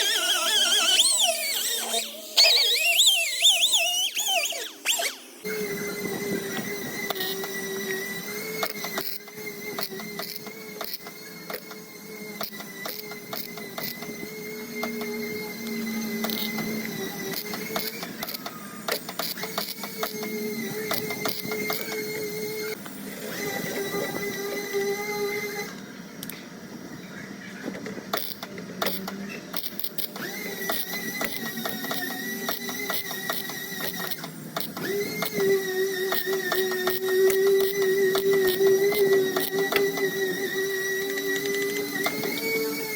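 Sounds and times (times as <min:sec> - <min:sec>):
steady pitched tone: 0:00.0 - 0:05.5
steady whine: 0:00.0 - 0:12.4.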